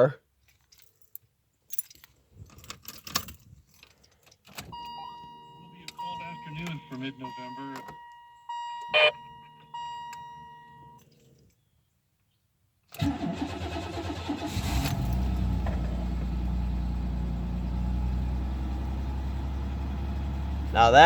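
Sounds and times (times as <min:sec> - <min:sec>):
car engine starting and idling: 0:04.4 - 0:11.4, 0:12.9 - 0:21.0
car warning chimes: 0:04.6 - 0:11.3.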